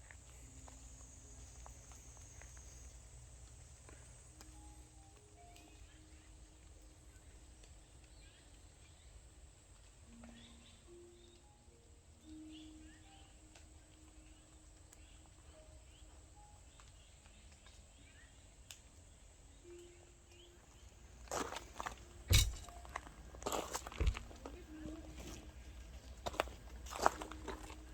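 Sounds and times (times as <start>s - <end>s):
faint forest ambience: 0.0s - 27.9s
soft bird chirps: 0.0s - 27.9s.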